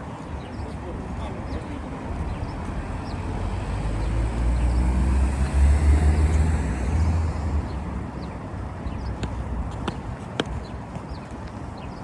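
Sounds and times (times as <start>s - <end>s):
vehicle engine passing close: 3.3s - 7.9s.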